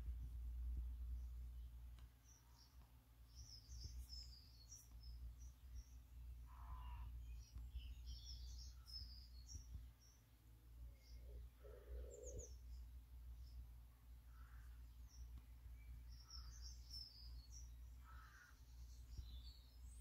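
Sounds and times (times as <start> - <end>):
steady low hum: 0.0 - 20.0
lower bird call: 6.4 - 9.7, 11.0 - 12.7, 16.2 - 19.6.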